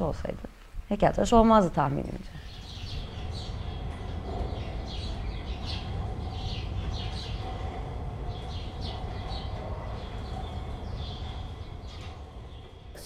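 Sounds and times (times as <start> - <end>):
low background rumble: 0.0 - 13.0
small birds chirping: 1.0 - 13.0.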